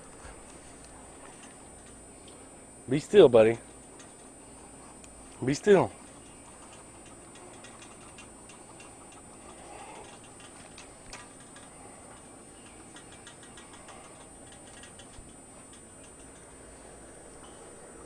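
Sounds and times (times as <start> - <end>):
steady hiss: 0.0 - 18.0
faint fast ticking: 3.6 - 18.0.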